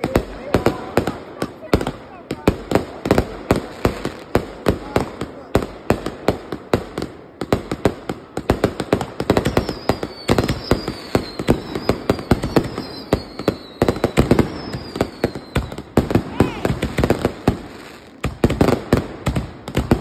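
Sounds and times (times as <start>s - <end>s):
fireworks bangs and crackles: 0.0s - 20.0s
falling firework whistle: 9.4s - 16.8s.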